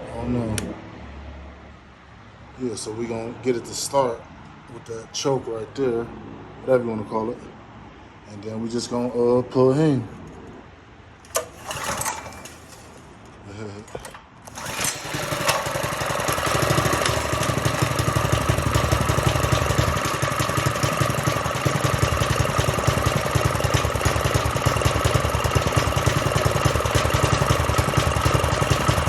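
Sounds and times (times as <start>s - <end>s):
small engine idling: 11.3s - 12.9s, 14.4s - 29.0s.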